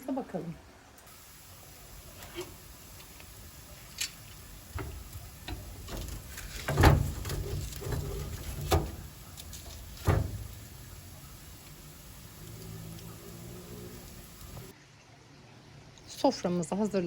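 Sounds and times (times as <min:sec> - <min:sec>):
kitchen things knocking and clattering: 0:03.8 - 0:13.0.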